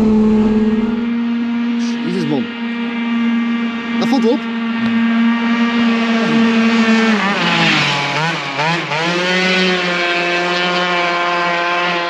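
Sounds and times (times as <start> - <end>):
two-stroke scooter engine: 0.0 - 12.0.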